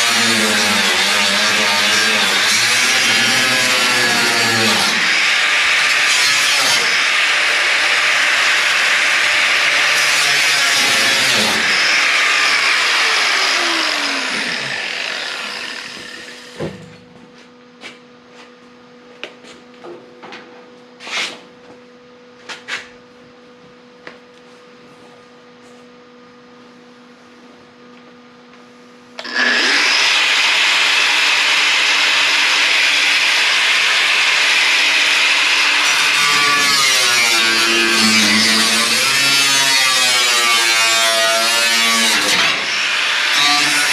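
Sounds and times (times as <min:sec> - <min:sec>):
power saw cutting sheet steel: 0:00.0 - 0:16.6, 0:29.2 - 0:43.9.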